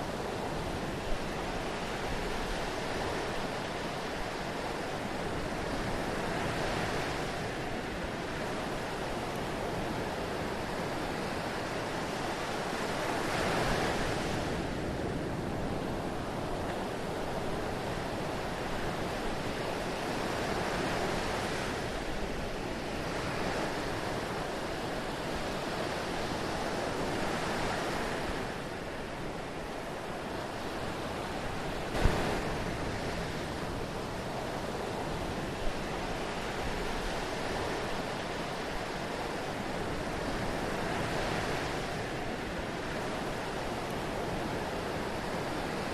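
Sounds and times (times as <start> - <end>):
rushing water: 27.6 - 45.9.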